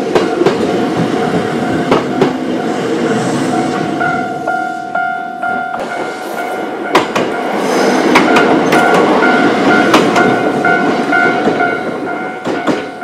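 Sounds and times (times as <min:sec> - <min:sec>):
electric train running: 0:00.0 - 0:13.0
level crossing bell ringing: 0:00.2 - 0:13.0
wheel clacks over rail joints: 0:06.9 - 0:13.0.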